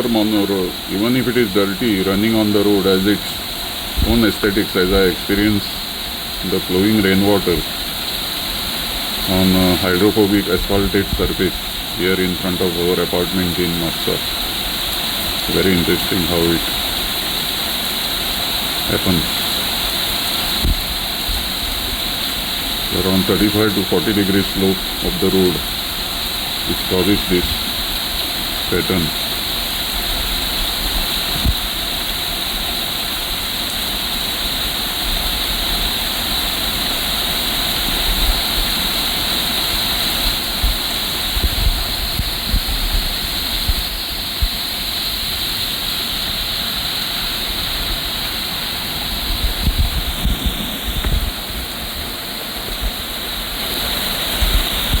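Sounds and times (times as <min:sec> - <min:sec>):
rainwater rushing down road: 0:00.0 - 0:55.0.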